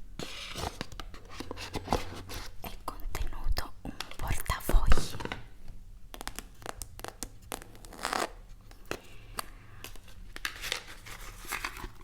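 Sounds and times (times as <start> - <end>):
packaging crinkling and rustling: 9.8 - 12.0.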